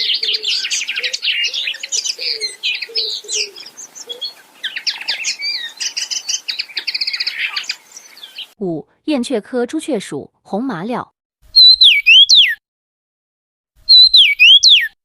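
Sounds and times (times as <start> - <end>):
linnet twittering song: 0.0 - 8.6, 11.6 - 12.6, 13.9 - 15.0.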